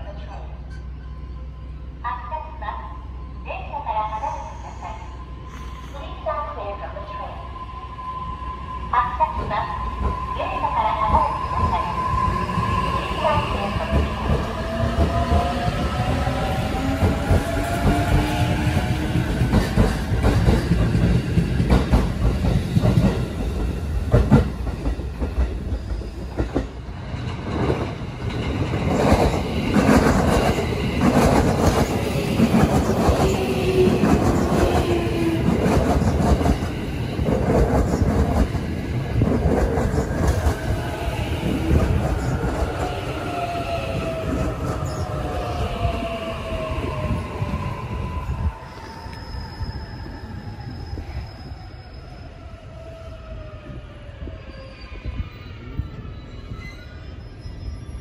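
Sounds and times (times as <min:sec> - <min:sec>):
train rumble: 0:08.8 - 0:51.5.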